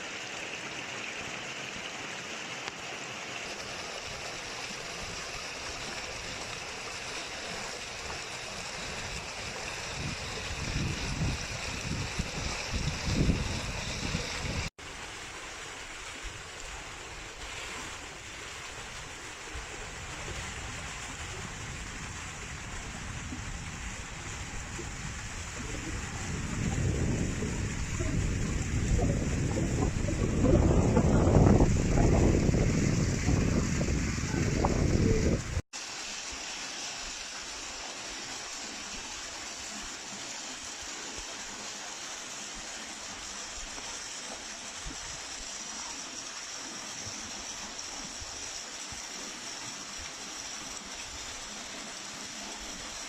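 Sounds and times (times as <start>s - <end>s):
flowing water rushing: 0.0s - 53.0s
wind buffeting microphone: 8.7s - 14.7s, 18.9s - 35.6s.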